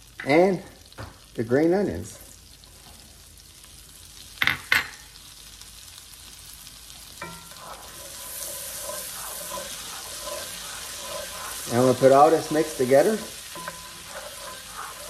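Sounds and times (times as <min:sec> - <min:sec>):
butter sizzling in skillet: 0:00.0 - 0:15.0
wooden spoon stirring pan: 0:06.9 - 0:15.0.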